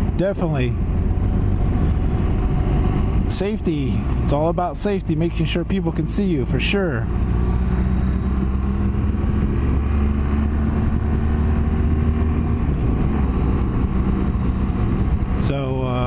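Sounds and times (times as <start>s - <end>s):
road and wind noise: 0.0s - 16.0s
motorcycle engine running: 7.0s - 15.5s.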